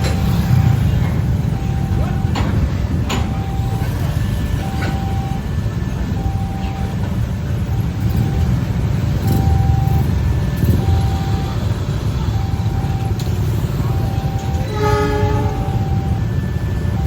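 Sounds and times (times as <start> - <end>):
level crossing alarm chiming: 0.0 - 17.0
passing train rumble: 0.0 - 17.0
train horn blast: 14.6 - 15.8.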